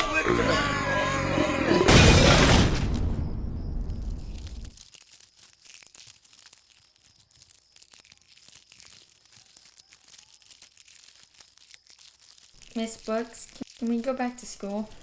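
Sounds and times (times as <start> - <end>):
loud sound: 1.7 - 4.7
faint crackling and rustling: 3.8 - 15.0.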